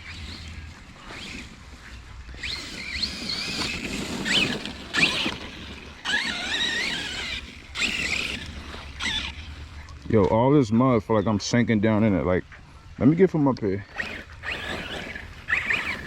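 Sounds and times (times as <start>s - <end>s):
rc truck electric motor whining: 0.0s - 10.1s, 13.8s - 16.0s
tyres splashing through mud: 2.4s - 9.6s.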